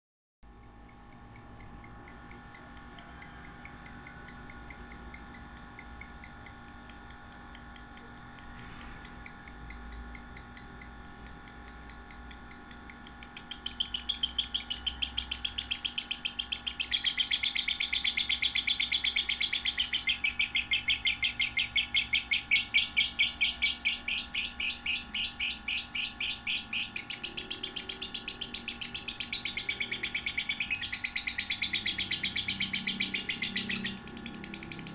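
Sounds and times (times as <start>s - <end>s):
lovebirds chirping: 12.6s - 34.9s.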